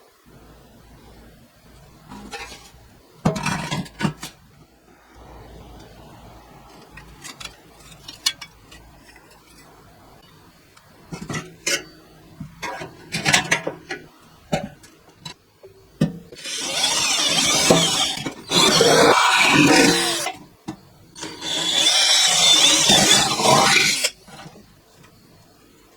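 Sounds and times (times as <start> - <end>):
harsh power tool on metal: 16.4 - 20.4, 21.2 - 24.2.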